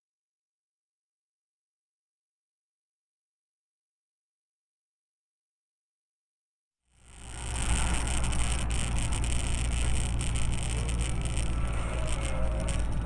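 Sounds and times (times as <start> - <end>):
car engine and road noise: 7.0 - 13.0.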